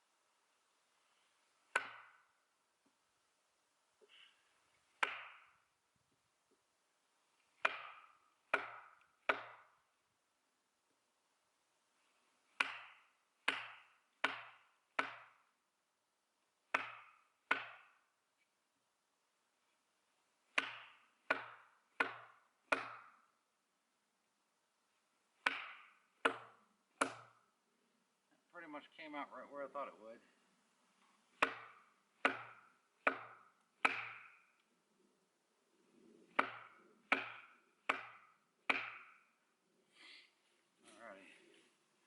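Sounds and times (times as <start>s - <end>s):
axe chopping into log: 1.7s - 2.2s, 5.0s - 5.5s, 7.6s - 9.7s, 12.6s - 15.4s, 16.7s - 17.9s, 20.5s - 23.2s, 25.4s - 27.4s, 31.4s - 34.4s, 36.4s - 39.2s.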